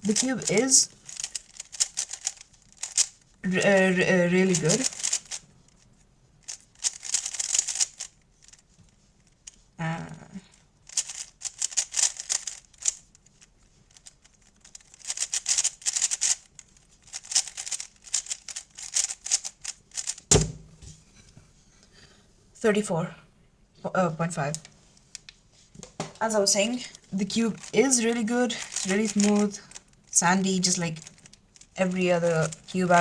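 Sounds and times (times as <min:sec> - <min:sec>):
speed cube clacking: 0:00.0 - 0:05.8, 0:06.4 - 0:09.7, 0:10.8 - 0:21.0, 0:26.9 - 0:33.0
sharp knock: 0:20.3 - 0:21.0.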